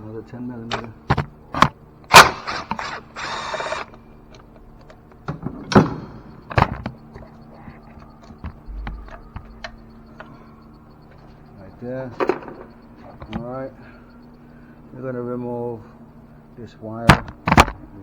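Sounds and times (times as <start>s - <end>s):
hand ratchet clicking: 1.6s - 4.5s.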